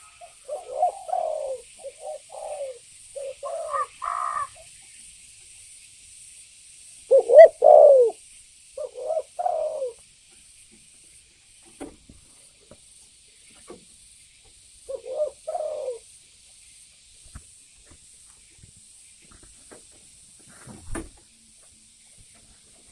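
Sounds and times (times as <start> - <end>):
dove cooing: 0.0 - 4.6, 7.1 - 8.2, 8.8 - 10.0, 14.9 - 16.0.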